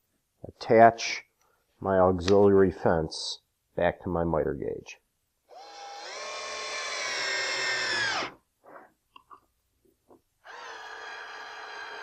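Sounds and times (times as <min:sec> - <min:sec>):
power drill whine: 0:05.5 - 0:08.4, 0:10.4 - 0:12.0.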